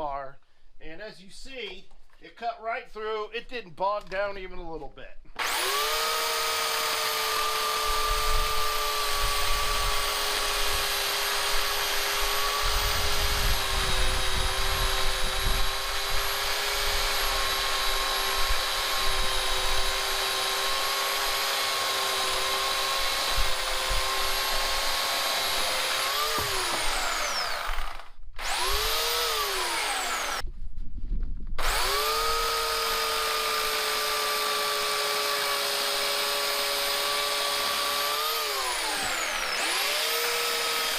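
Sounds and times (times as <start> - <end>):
electric chainsaw cutting wood: 5.4 - 30.4, 31.6 - 40.9.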